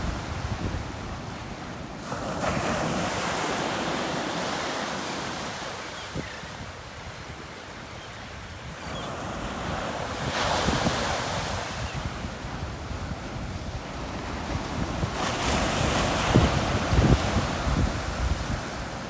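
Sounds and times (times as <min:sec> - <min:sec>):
wind rumble on microphone: 0:00.0 - 0:01.8, 0:08.5 - 0:19.0
waves breaking on beach: 0:00.0 - 0:12.8, 0:13.8 - 0:19.0.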